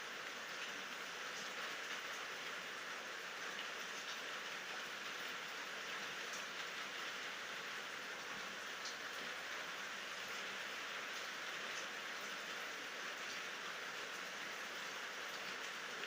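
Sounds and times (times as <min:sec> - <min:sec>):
rain hiss: 0:00.0 - 0:16.0
faint raindrop ticks: 0:03.4 - 0:07.1, 0:08.3 - 0:09.6, 0:11.0 - 0:12.6.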